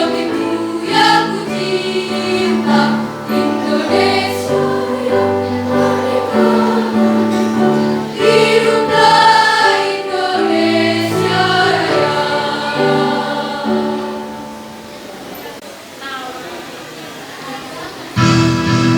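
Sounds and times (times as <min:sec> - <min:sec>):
choir singing in parts: 0:00.0 - 0:15.2.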